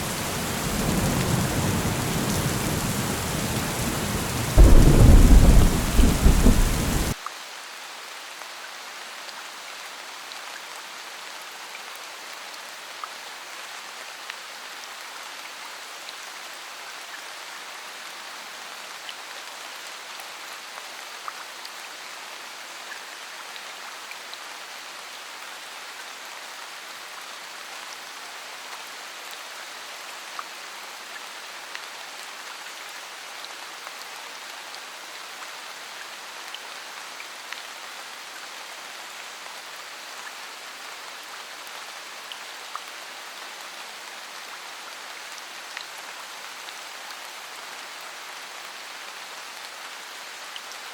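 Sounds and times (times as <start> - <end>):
steady rainfall: 0.0 - 50.9
raindrops tapping: 1.8 - 7.2.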